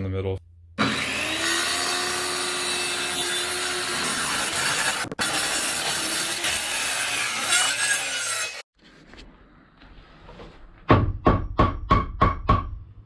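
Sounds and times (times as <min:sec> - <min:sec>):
power saw cutting plywood: 0:00.8 - 0:08.7.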